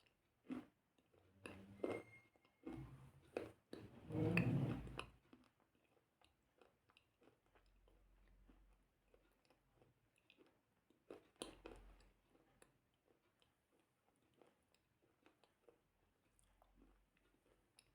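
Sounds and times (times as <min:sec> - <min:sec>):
chewing clicks and crunches: 0:00.0 - 0:01.7, 0:05.3 - 0:17.9.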